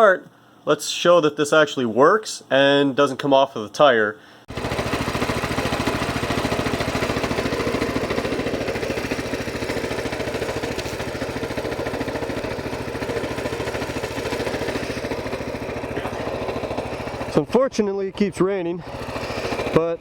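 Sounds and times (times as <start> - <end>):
mini bike engine running: 4.5 - 20.0.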